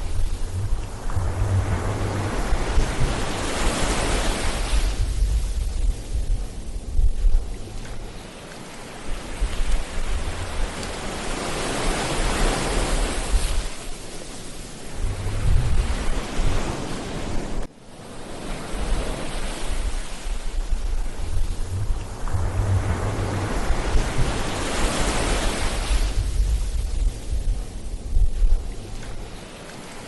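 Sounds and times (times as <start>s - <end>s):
wind buffeting microphone: 0.0s - 14.0s, 14.8s - 17.7s, 18.7s - 30.0s
ocean waves breaking: 0.0s - 30.0s.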